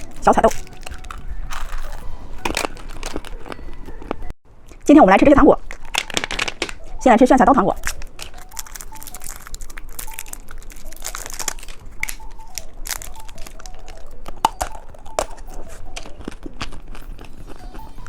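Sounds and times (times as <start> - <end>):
plastic wrapper crinkling: 0.0 - 4.8, 5.6 - 7.0, 7.8 - 18.0.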